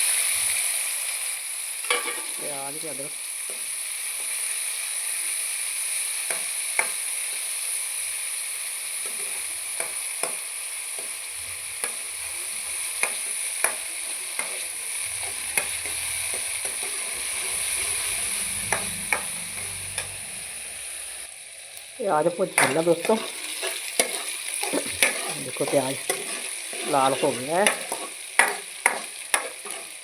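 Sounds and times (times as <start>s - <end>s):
onion and ginger sizzling: 0.0s - 30.0s
spoon clicking against pan: 27.6s - 29.9s.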